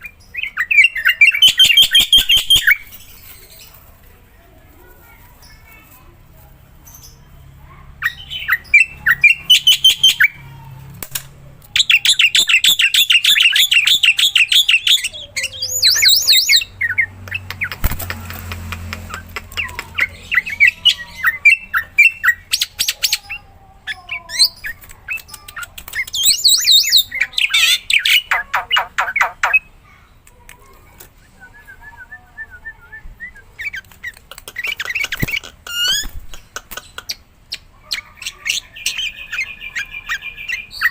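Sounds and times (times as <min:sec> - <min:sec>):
myna bird singing fast repeated notes: 0:00.0 - 0:03.7, 0:08.0 - 0:10.4, 0:11.7 - 0:18.2, 0:19.0 - 0:23.4, 0:24.1 - 0:29.8, 0:33.5 - 0:40.9.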